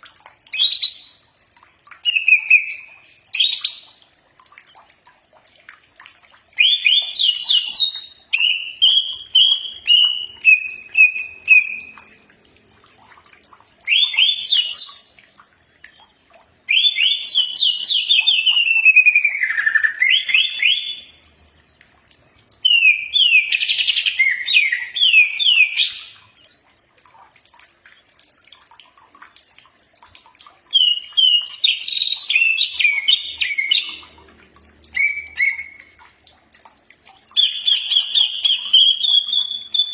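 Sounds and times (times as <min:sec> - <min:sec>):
bird singing whistled trills: 0:02.0 - 0:03.9, 0:06.6 - 0:12.0, 0:13.9 - 0:15.1, 0:16.7 - 0:21.2, 0:22.6 - 0:26.3, 0:30.8 - 0:34.0, 0:34.9 - 0:36.0, 0:37.4 - 0:39.9.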